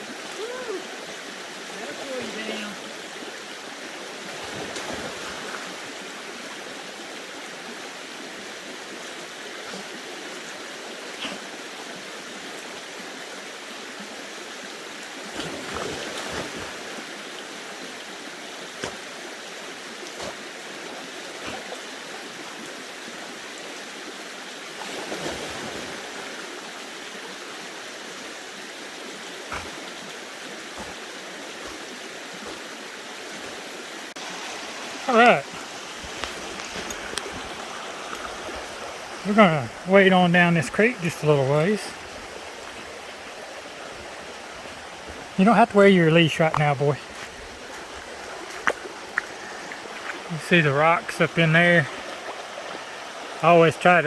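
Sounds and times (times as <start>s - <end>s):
creek water over rocks: 0.0s - 54.0s.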